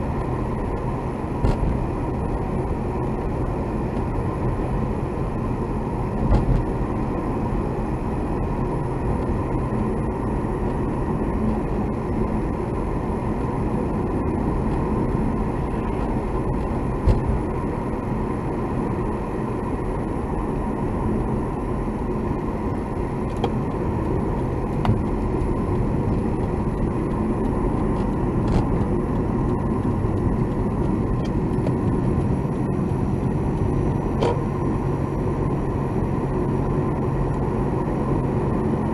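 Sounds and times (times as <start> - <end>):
road and engine noise in car: 0.0 - 38.9.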